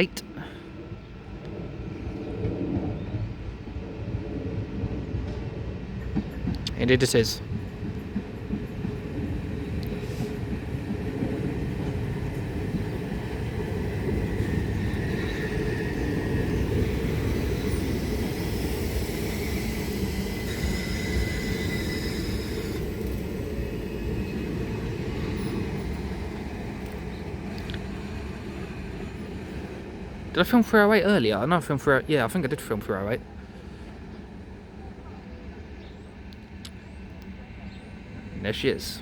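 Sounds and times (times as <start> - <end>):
train wheels rumbling on rails: 1.3 - 39.0
faint high whines: 14.0 - 26.2.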